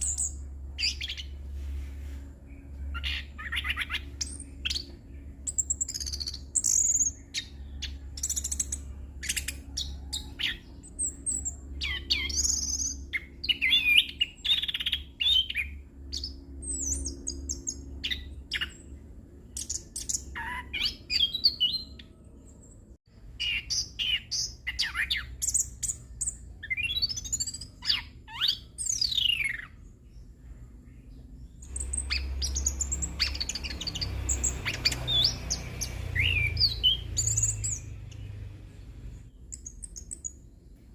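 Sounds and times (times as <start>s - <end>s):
steady low hum: 0.0s - 40.9s
thrush singing: 31.7s - 38.7s.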